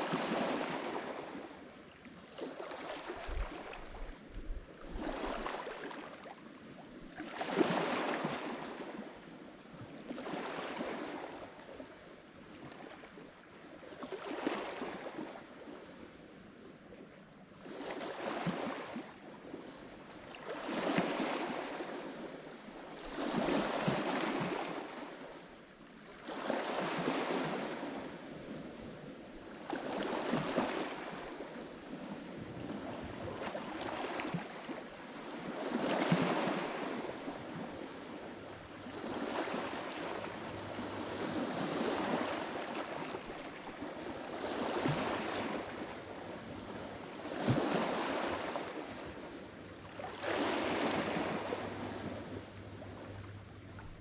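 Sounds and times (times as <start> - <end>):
waves breaking on shore: 0.0 - 16.2, 17.5 - 54.0.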